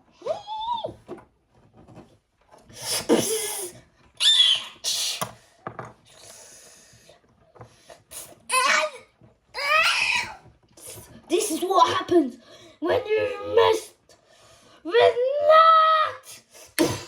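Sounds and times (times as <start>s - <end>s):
child making hissing blasts: 2.8s - 5.3s.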